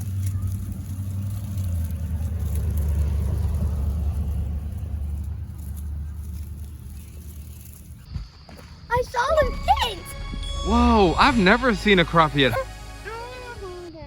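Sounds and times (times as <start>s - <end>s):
low rough rumble: 0.0s - 8.1s.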